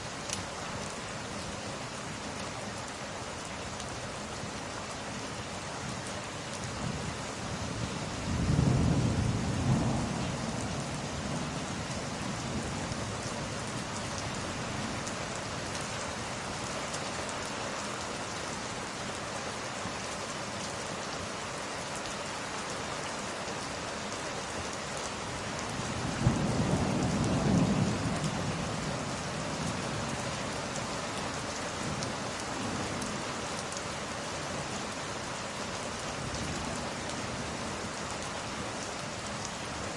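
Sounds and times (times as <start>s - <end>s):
heavy rain: 0.0s - 39.9s
low rolls of thunder: 8.2s - 12.7s, 25.9s - 30.1s.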